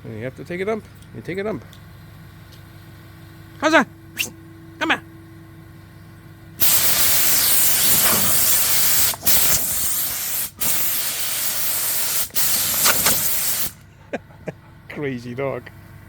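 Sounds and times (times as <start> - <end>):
compressed air hissing from hose: 6.6 - 13.8.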